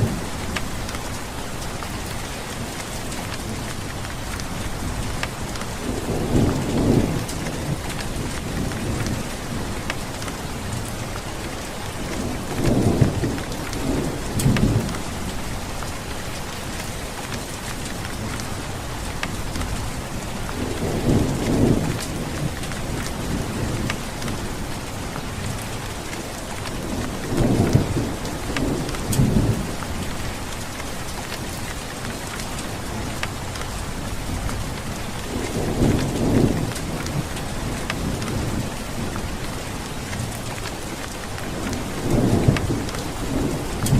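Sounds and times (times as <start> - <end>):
heavy rain: 0.0 - 43.9
thunder rumbling: 2.6 - 11.1, 17.9 - 31.4, 32.9 - 43.9.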